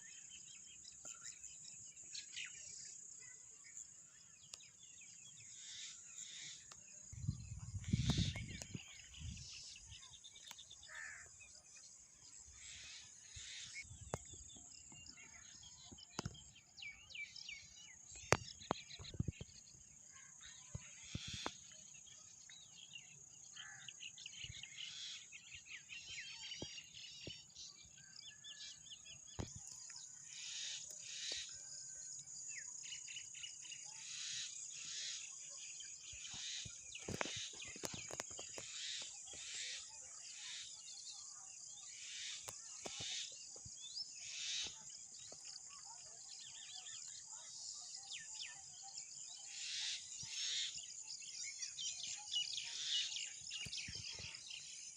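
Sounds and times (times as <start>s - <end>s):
birds chirping and singing: 0.0s - 54.9s.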